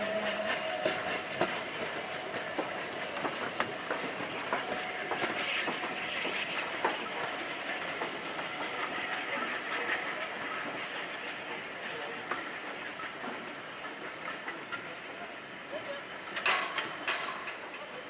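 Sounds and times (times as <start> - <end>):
train rolling on rails: 0.0 - 18.0
wheels clacking over rail joints: 16.2 - 18.0.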